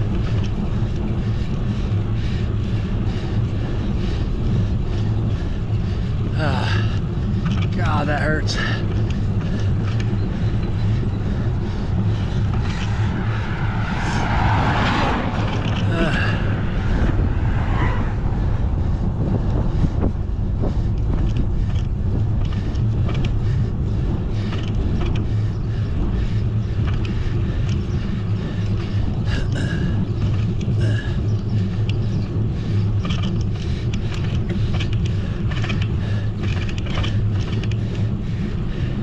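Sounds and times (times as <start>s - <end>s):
small clicks and rattles: 0.0s - 1.1s, 7.0s - 7.8s, 8.8s - 13.6s, 15.4s - 15.9s, 20.9s - 23.6s, 24.3s - 25.6s, 26.7s - 38.2s
bicycle road rumble: 0.0s - 39.0s
wind rush: 0.0s - 39.0s.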